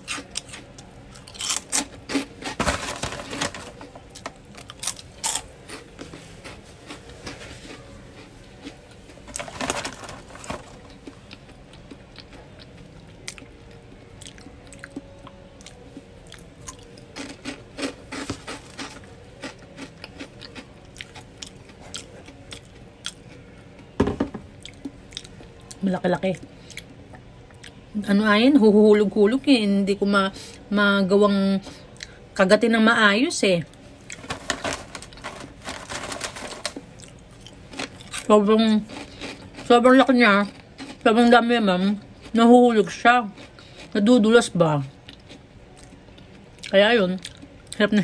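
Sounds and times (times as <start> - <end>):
person chewing food: 10.8 - 23.5, 38.9 - 39.7, 43.4 - 43.9.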